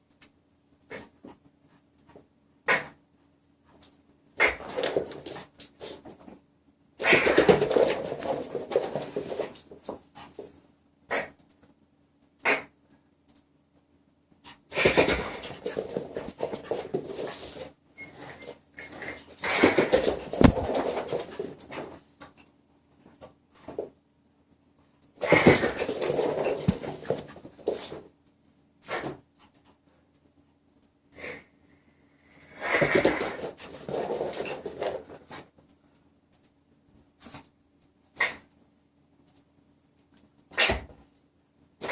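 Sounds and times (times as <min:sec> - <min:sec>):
dog scuffling: 0:03.7 - 0:06.4, 0:07.0 - 0:10.6, 0:14.7 - 0:22.1, 0:25.2 - 0:28.1, 0:32.7 - 0:35.5.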